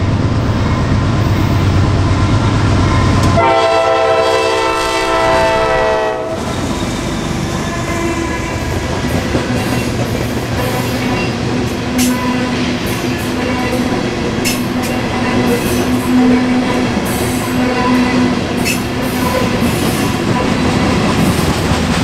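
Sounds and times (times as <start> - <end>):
diesel locomotive engine rumble: 0.0 - 22.0
locomotive horn blast: 3.2 - 6.7, 7.6 - 8.8
train wheels clickety-clack: 8.5 - 22.0.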